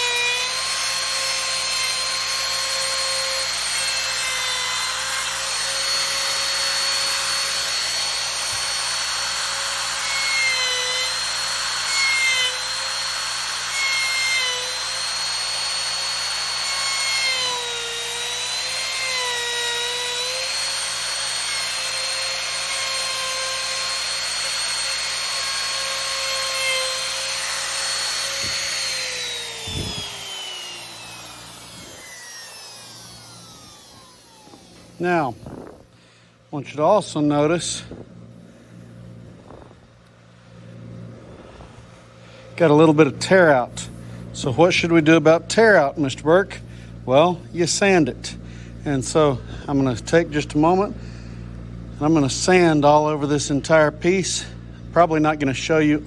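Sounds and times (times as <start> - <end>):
router motor winding down: 0.0 - 35.9
electric router whining: 0.0 - 36.0.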